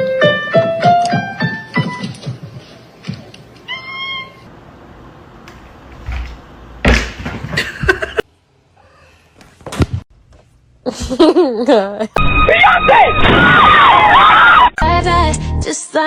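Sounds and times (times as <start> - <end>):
cat meowing: 3.7 - 4.5
high cry: 12.3 - 14.8.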